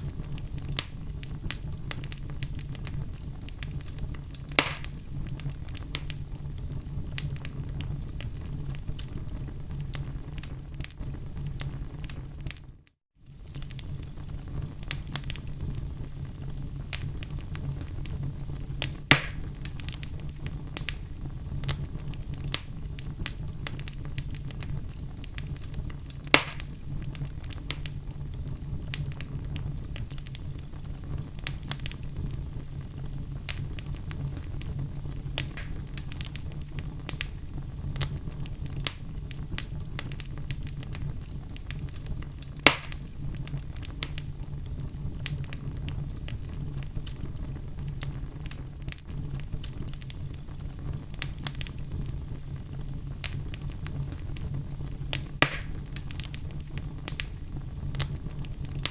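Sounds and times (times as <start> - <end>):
fire crackling: 0.0 - 58.9
low rumble of flames: 0.0 - 58.9
logs popping: 3.7 - 6.2, 18.8 - 20.1, 25.4 - 27.9, 35.4 - 37.3, 42.6 - 44.2, 55.1 - 56.4.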